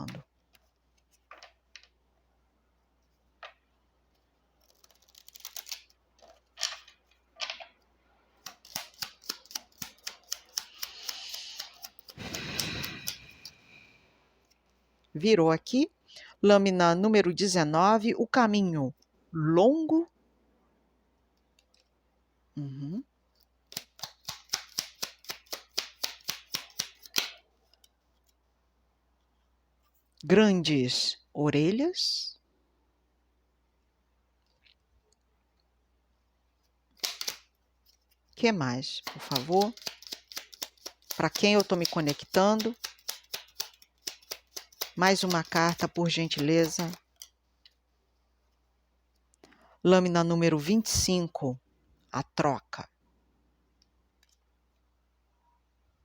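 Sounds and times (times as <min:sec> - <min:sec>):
cards being shuffled: 0:04.6 - 0:07.8, 0:08.4 - 0:13.6, 0:23.7 - 0:28.4, 0:36.9 - 0:38.3, 0:39.0 - 0:47.4
card clicks and snaps: 0:37.0 - 0:37.5.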